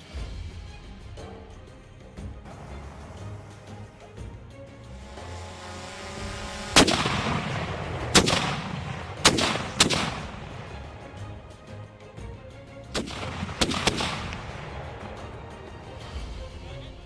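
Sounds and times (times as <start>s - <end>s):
faint music: 0.0s - 17.0s
cannon fire booms: 6.8s - 11.0s.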